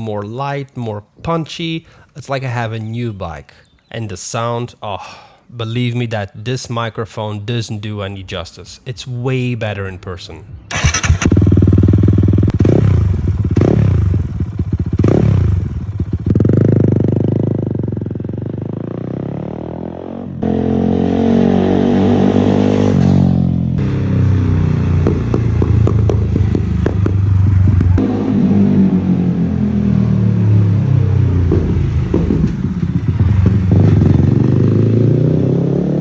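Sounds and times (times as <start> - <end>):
motorcycle engine revving: 10.7 - 36.0.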